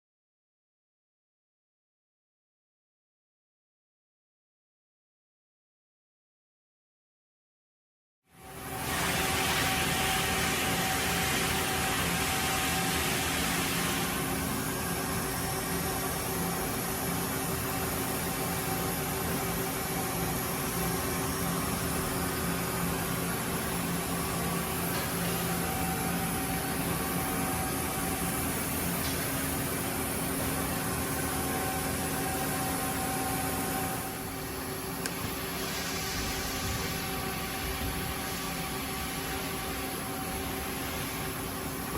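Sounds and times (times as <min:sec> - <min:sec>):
machine hiss: 0:08.6 - 0:15.5, 0:35.2 - 0:39.4.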